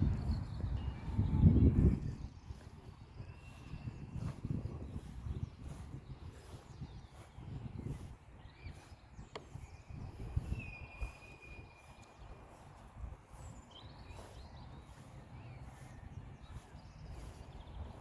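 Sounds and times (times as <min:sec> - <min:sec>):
bird chirps: 0:00.1 - 0:18.0
bird whistle: 0:10.4 - 0:12.0.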